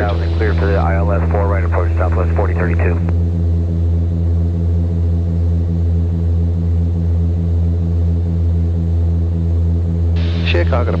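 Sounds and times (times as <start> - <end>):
aircraft engines droning in cockpit: 0.0 - 11.0.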